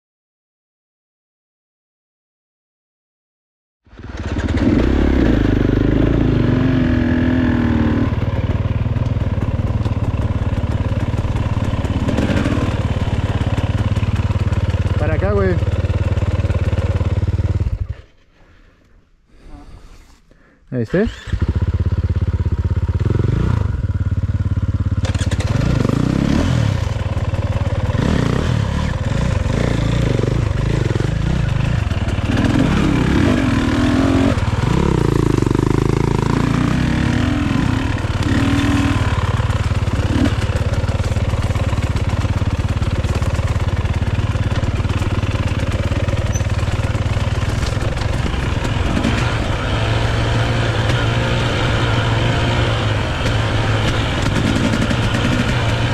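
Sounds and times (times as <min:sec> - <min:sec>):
dirt bike engine revving: 0:04.0 - 0:18.1, 0:21.0 - 0:55.9.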